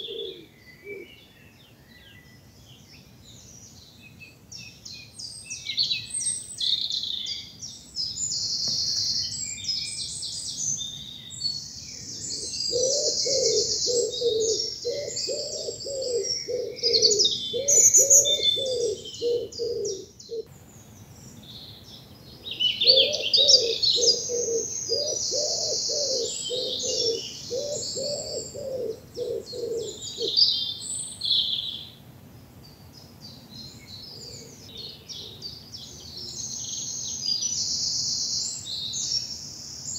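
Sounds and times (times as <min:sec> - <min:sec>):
low cooing bird call: 0:00.0 - 0:02.2, 0:10.6 - 0:20.5, 0:22.3 - 0:31.9, 0:33.7 - 0:36.6
songbirds singing and chirping: 0:00.0 - 0:39.9.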